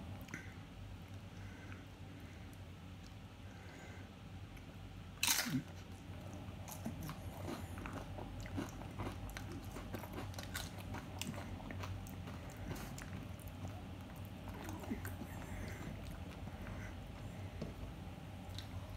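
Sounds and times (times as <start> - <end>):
tortilla chip crunch: 5.2 - 5.9, 6.7 - 15.3
crunchy chewing: 5.2 - 17.7.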